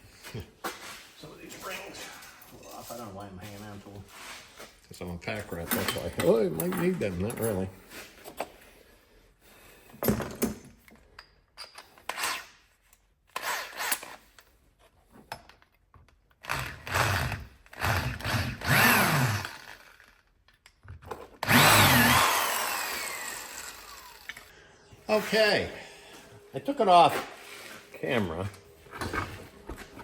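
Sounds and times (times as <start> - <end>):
power drill drilling: 16.5 - 20.1, 21.4 - 24.5.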